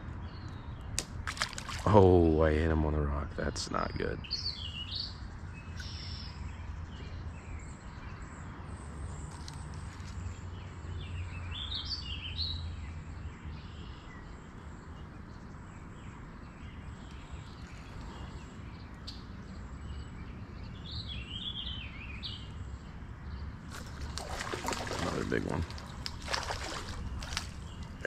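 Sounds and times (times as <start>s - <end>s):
songbird warbling: 4.2s - 6.5s, 13.6s - 28.0s.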